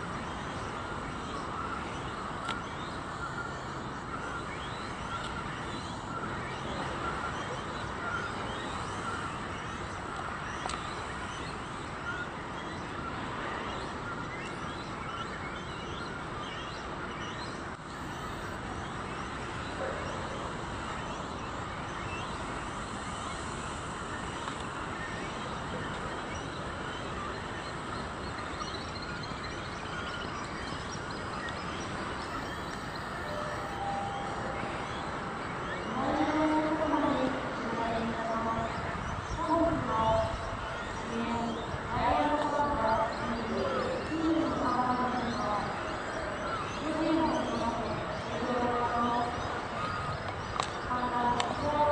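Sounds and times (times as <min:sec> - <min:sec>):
outdoor background noise: 0:00.0 - 0:51.9
faint bird chirps: 0:00.2 - 0:39.6.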